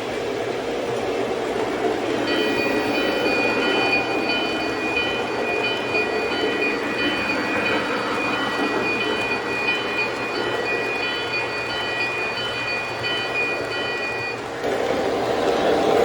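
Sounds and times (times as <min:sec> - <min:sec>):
model train rumbling on track: 0:00.0 - 0:16.0
high steady tones: 0:02.2 - 0:14.6.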